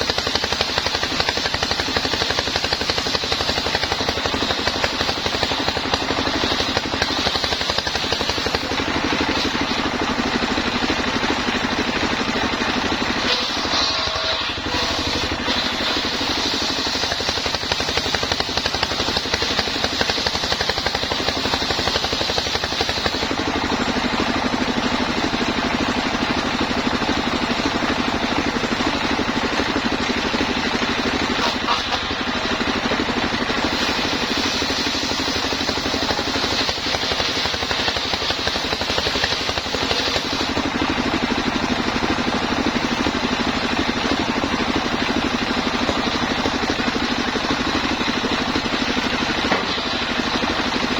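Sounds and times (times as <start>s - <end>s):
engine-driven sawmill running: 0.0s - 50.9s
high whine of saw: 13.2s - 23.5s, 31.0s - 41.0s.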